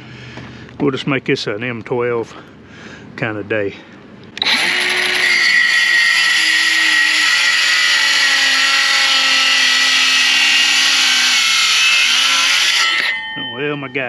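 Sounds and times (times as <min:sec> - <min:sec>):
circular saw cutting wood: 0:04.4 - 0:13.3.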